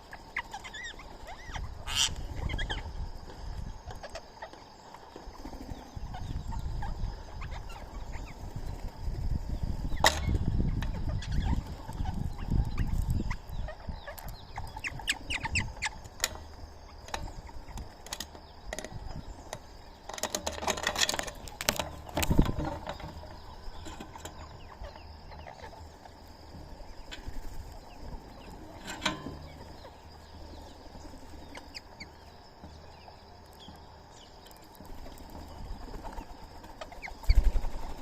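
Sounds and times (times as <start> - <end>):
parrot calls and chirps: 0.1 - 2.9, 11.0 - 16.0.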